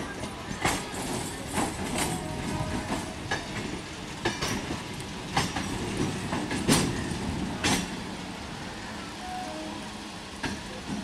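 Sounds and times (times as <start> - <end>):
wheels clacking over rail joints: 0.0 - 8.2
train rumble: 0.0 - 11.0.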